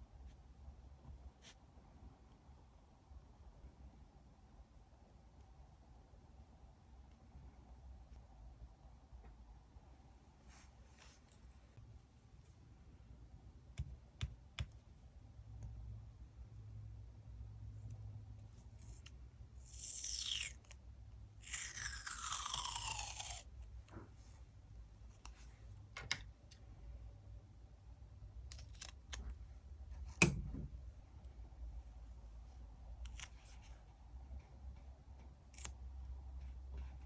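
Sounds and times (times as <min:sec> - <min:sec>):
scissors cutting paper: 0:18.4 - 0:20.8, 0:21.4 - 0:23.5, 0:28.4 - 0:29.3, 0:35.4 - 0:35.8.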